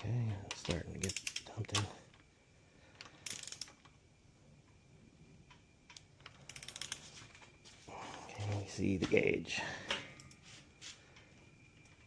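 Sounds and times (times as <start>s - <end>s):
torque wrench ratchet clicking: 0.6s - 1.8s, 5.9s - 7.0s.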